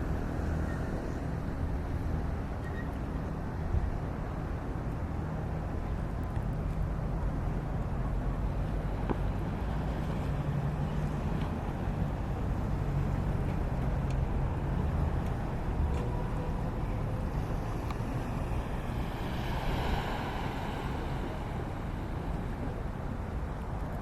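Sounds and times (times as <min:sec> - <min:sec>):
low engine hum: 0:00.0 - 0:24.0
wind rushing over microphone: 0:16.6 - 0:24.0.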